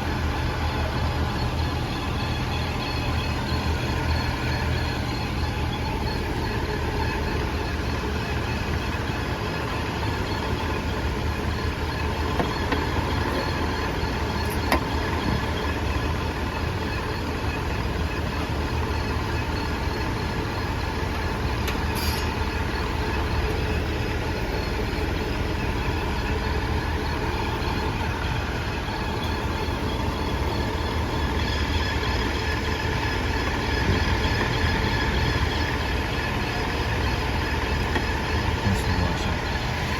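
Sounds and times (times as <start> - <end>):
drivetrain mechanical drone: 0.0 - 39.9
faint steady whine: 0.0 - 39.9.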